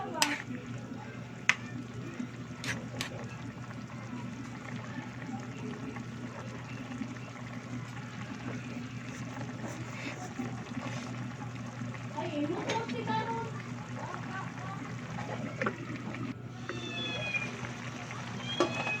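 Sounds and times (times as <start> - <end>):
stew bubbling in a pot: 0.0 - 19.0.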